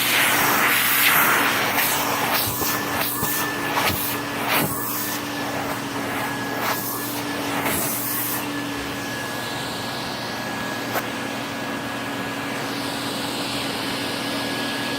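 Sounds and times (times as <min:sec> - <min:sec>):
hissing rushes: 0:00.0 - 0:08.6
vacuum cleaner running: 0:00.0 - 0:14.9.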